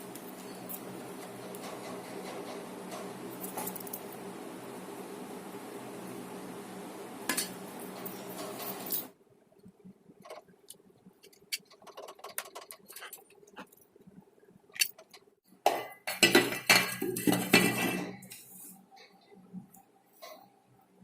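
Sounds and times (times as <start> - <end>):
rattling and scraping: 7.3 - 9.1.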